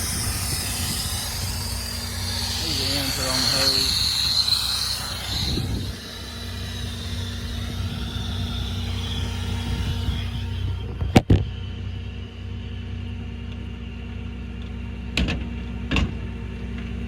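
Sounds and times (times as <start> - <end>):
air hissing: 0.0 - 11.2
diesel engine running: 0.0 - 17.0.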